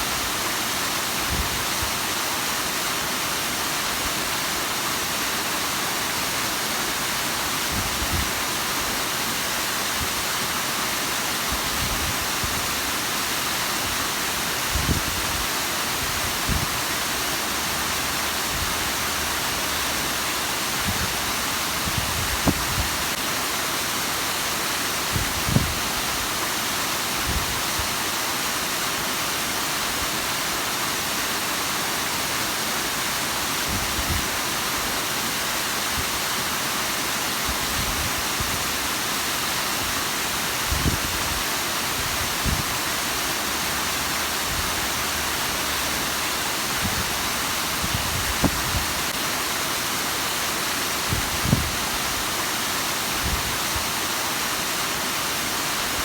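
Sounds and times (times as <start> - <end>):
waterfall rushing hiss: 0.0 - 56.0.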